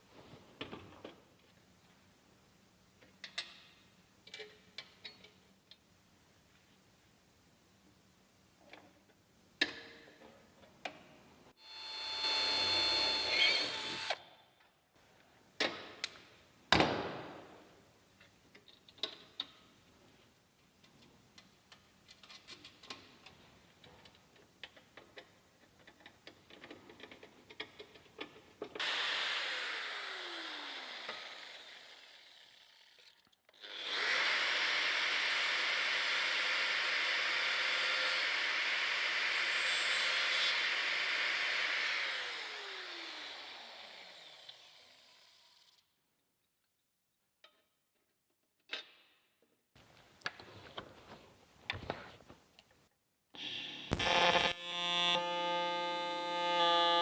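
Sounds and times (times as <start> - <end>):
power tool whine: 11.6 - 14.2, 28.8 - 45.8, 53.4 - 57.0.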